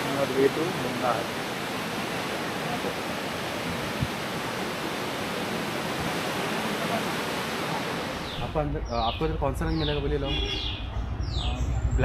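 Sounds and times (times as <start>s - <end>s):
waterfall rushing: 0.0s - 9.2s.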